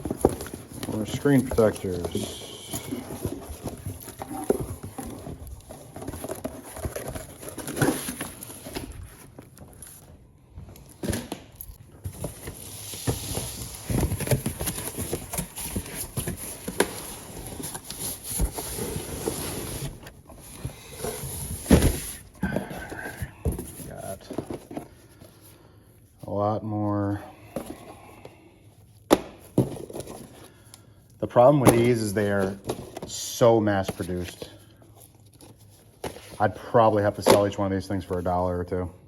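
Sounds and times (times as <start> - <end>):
plastic packaging rustling: 0.0 - 10.2.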